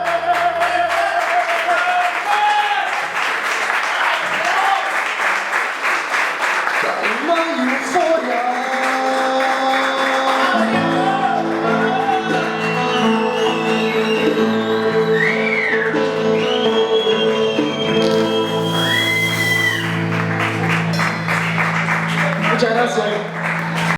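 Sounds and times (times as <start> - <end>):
sliding high guitar notes: 9.7 - 23.9
electric guitar chords: 9.9 - 23.9
bass guitar: 10.5 - 23.9
rock band playing: 10.5 - 23.9.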